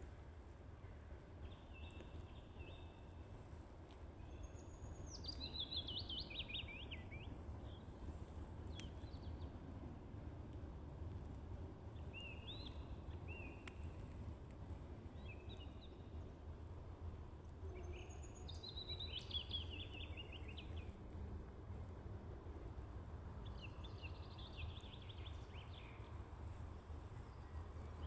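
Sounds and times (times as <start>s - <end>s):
songbirds chirping and trilling: 4.2s - 8.0s, 17.7s - 21.0s.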